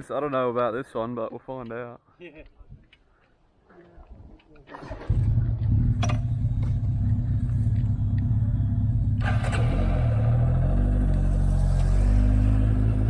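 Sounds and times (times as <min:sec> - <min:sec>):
motorcycle engine running: 0:04.9 - 0:13.0.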